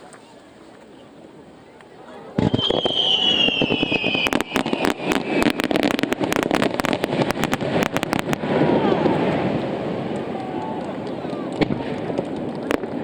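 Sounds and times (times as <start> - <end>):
fireworks bangs and crackles: 2.3 - 13.0
high firework whistle: 2.4 - 6.5.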